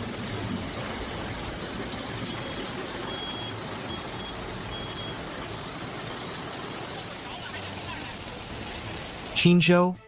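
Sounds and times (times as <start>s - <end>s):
heavy rain and floodwater: 0.0s - 10.0s
high electronic beep: 2.3s - 5.2s.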